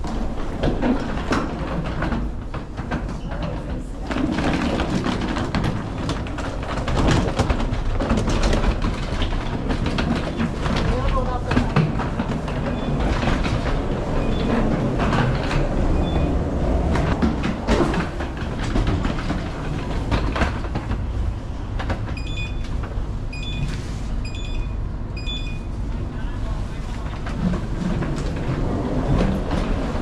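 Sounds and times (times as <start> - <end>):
wheels clicking and knocking: 0.0 - 23.4, 26.8 - 30.0
train low rumble: 0.0 - 30.0.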